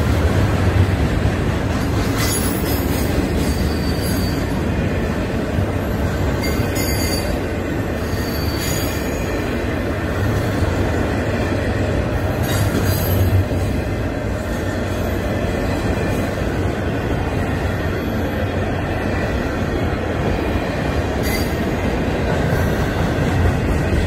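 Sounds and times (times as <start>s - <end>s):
train wheels rumbling on rail: 0.0s - 24.0s
high wheel squeals: 2.2s - 4.6s, 8.0s - 9.4s, 21.2s - 21.8s.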